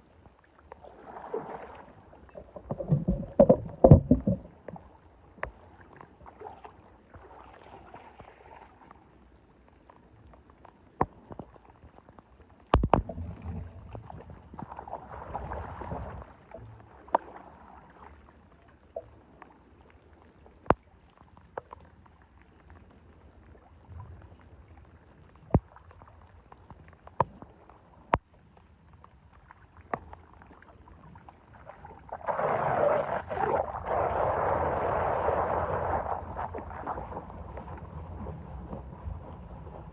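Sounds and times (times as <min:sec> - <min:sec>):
water sloshing and splashing: 0:00.3 - 0:09.0, 0:12.8 - 0:22.0, 0:29.4 - 0:39.9.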